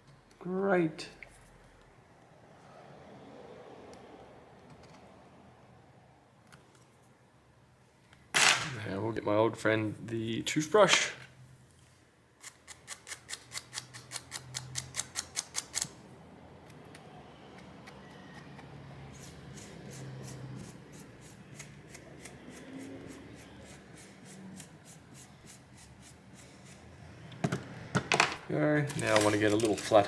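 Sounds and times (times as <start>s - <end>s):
toothbrush scrubbing: 19.2s - 26.8s.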